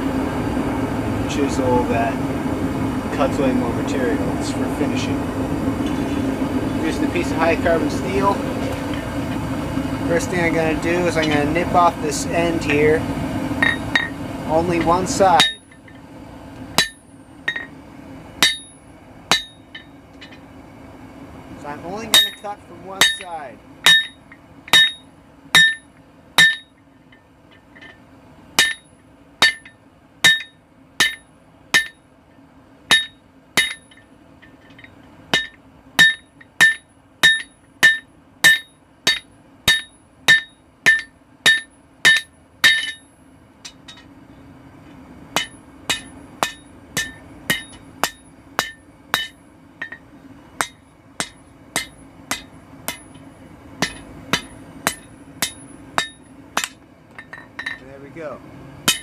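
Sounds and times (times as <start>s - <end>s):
steady low hum: 0.0s - 59.0s
hammer ringing on steel: 15.3s - 15.8s, 16.8s - 17.7s, 18.4s - 20.4s, 22.0s - 26.8s, 28.6s - 32.0s, 32.9s - 34.0s, 35.3s - 43.1s, 45.4s - 50.0s, 50.6s - 53.2s, 53.8s - 57.8s.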